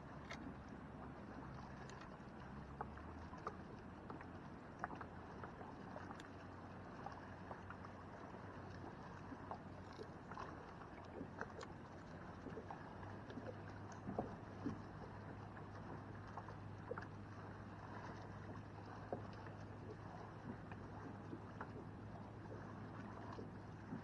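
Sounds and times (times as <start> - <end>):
steady low hum: 0.0 - 24.0
water lapping: 0.0 - 24.0.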